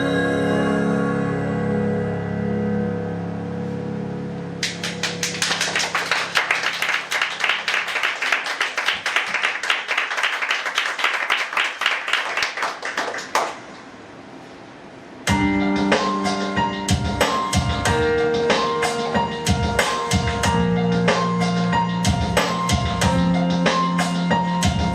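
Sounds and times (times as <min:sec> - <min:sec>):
audience applauding: 0:04.6 - 0:13.8
percussion: 0:16.9 - 0:24.9.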